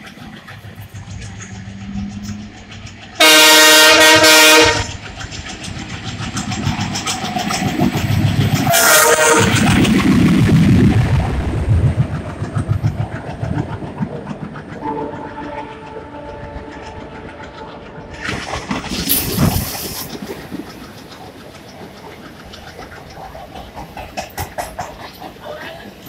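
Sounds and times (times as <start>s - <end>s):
train wheels clattering over joints: 0.0s - 11.0s, 11.6s - 26.0s
distant train horn: 3.2s - 5.0s, 8.6s - 9.7s, 14.8s - 18.2s.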